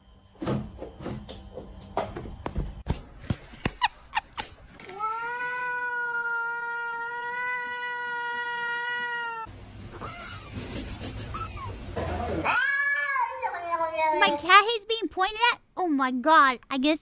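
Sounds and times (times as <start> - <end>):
cat meowing: 4.9 - 9.5, 12.2 - 14.3.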